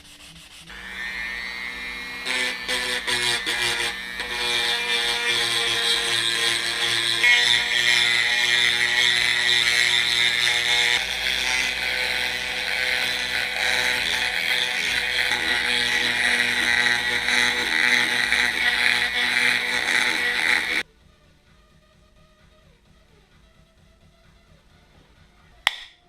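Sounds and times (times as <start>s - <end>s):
electric power tool motor: 0.7s - 20.8s.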